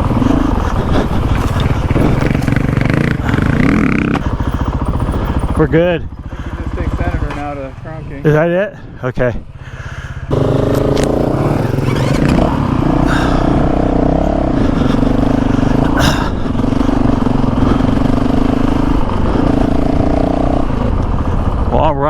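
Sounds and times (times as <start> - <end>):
motorcycle engine under throttle: 0.0 - 22.0.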